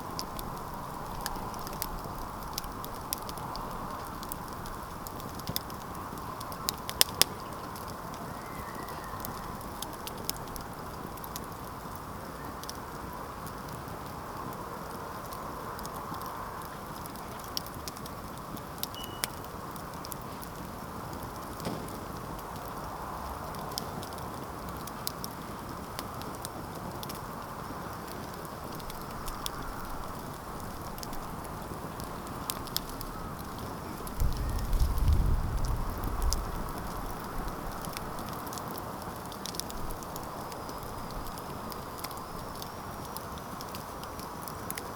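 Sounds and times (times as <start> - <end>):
campfire crackling and popping: 0.0 - 44.9
faint high whistle: 8.3 - 9.3, 19.0 - 19.4.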